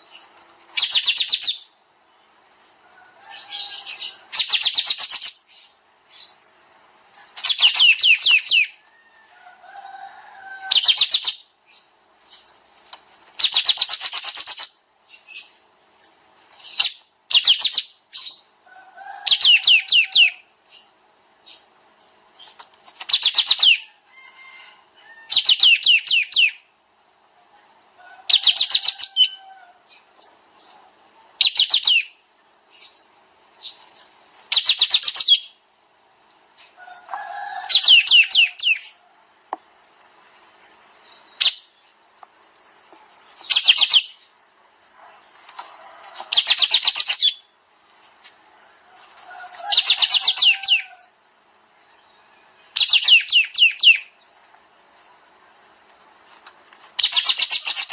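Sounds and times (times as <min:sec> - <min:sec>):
songbird singing fast descending notes: 0:00.0 - 0:01.8, 0:03.2 - 0:08.9, 0:09.9 - 0:12.6, 0:13.4 - 0:22.1, 0:23.1 - 0:26.7, 0:28.3 - 0:30.5, 0:31.4 - 0:33.8, 0:34.5 - 0:35.6, 0:36.6 - 0:39.0, 0:42.5 - 0:55.2.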